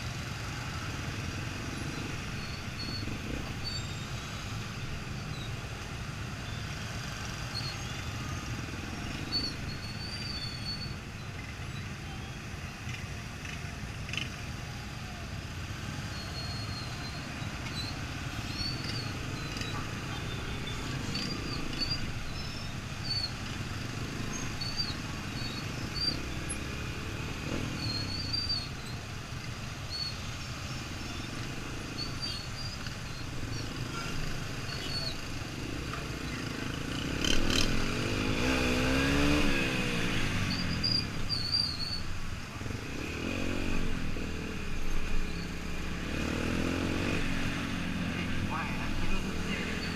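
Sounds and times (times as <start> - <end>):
birds chirping: 15.8 - 49.9.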